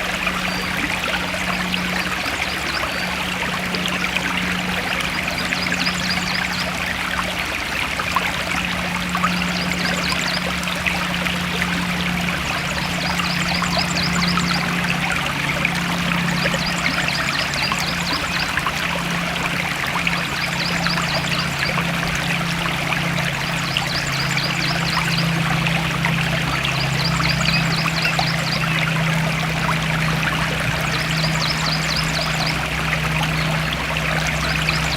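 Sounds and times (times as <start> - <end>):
low hum: 0.0 - 34.9
stream trickling: 0.0 - 34.9.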